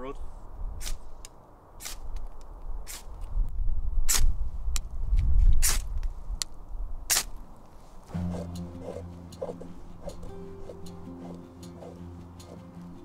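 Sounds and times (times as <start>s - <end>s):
saw spine scraping ferro rod: 8.1s - 12.6s.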